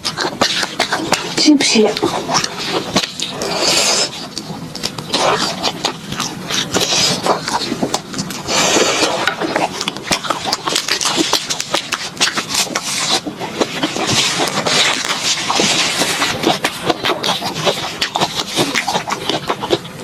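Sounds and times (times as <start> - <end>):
chewing crunchy food: 0.0 - 20.0.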